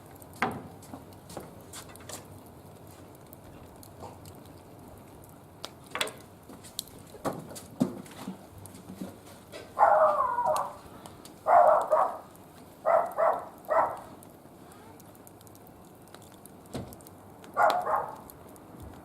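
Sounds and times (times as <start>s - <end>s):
dog barking: 9.8s - 10.8s, 11.4s - 14.1s, 17.5s - 18.2s.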